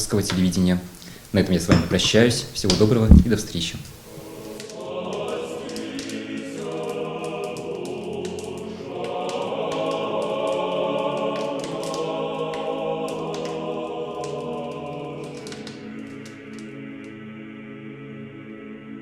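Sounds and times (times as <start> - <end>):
choir singing chant: 4.1 - 19.0.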